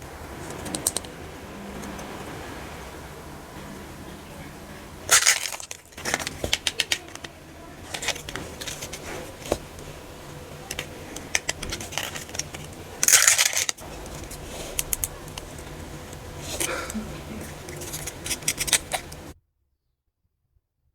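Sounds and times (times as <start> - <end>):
plastic wrapping crinkling rustle: 3.6 - 19.4
plastic packaging clicks and crinkles: 5.1 - 19.4.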